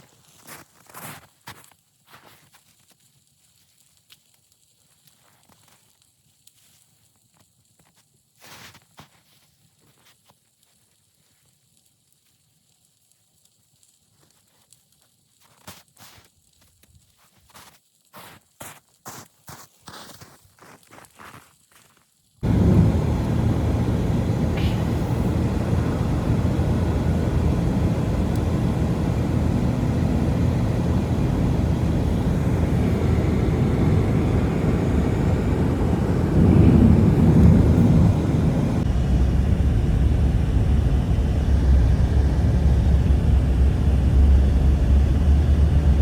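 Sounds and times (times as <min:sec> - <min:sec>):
deep even hum: 0:22.4 - 0:46.0
loud low rumble: 0:22.4 - 0:46.0.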